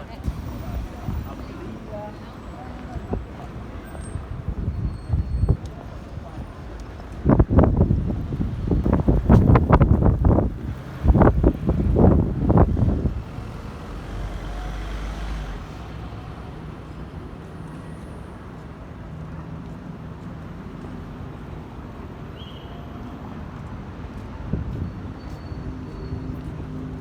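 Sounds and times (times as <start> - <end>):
low rumble: 0.0 - 5.4
city street traffic: 0.0 - 27.0.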